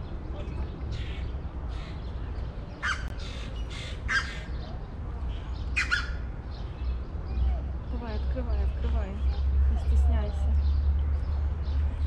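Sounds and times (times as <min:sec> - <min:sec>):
bird cawing: 0:02.8 - 0:04.6.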